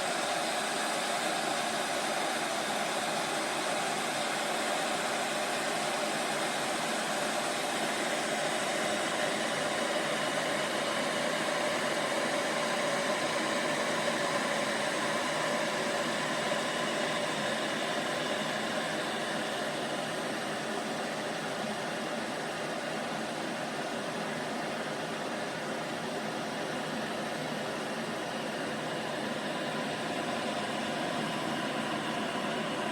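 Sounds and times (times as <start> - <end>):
electric kettle heating water: 0.0 - 32.9.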